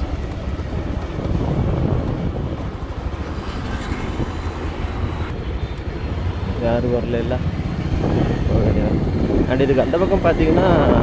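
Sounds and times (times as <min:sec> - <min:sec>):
motorcycle engine and road noise: 0:00.0 - 0:11.0
wind rush on microphone: 0:00.0 - 0:11.0.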